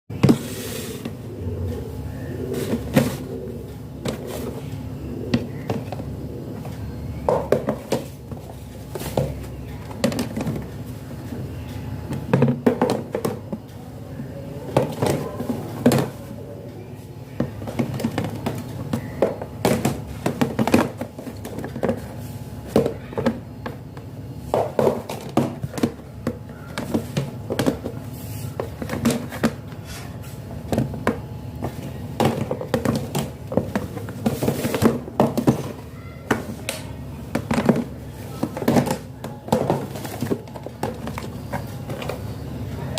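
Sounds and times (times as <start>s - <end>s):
plastic containers clattering: 0.1s - 42.9s.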